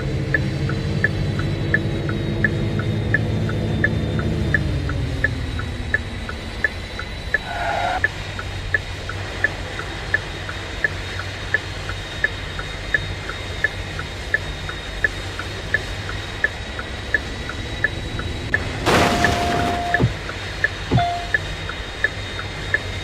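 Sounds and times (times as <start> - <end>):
turn signal relay ticking: 0.2 - 18.8, 19.8 - 23.0
car cabin hum: 15.1 - 21.4
brief beep: 18.9 - 20.1, 20.9 - 21.4.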